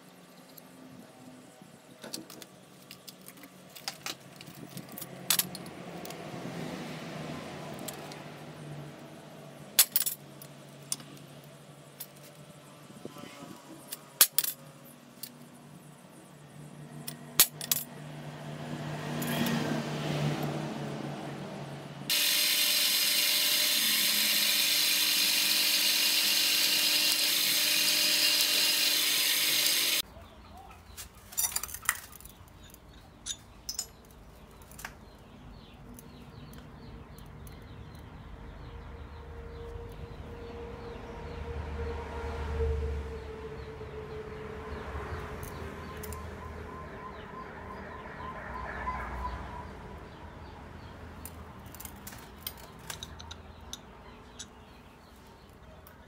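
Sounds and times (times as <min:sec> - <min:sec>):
metal parts clinking: 0:02.0 - 0:06.2, 0:09.8 - 0:12.5, 0:13.8 - 0:15.5, 0:17.0 - 0:17.9, 0:19.2 - 0:19.5, 0:31.2 - 0:35.0, 0:51.2 - 0:54.7
power tool hissing on metal: 0:22.1 - 0:30.0.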